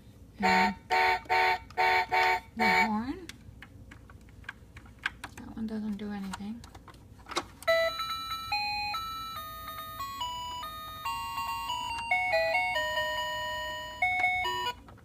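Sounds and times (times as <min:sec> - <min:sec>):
electronic beeping melody: 0:07.7 - 0:14.8.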